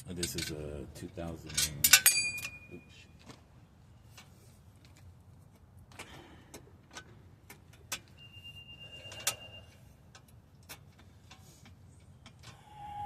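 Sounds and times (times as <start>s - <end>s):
high steady ringing tone: 8.1s - 10.0s
hand tools clicking and tapping: 9.1s - 12.6s.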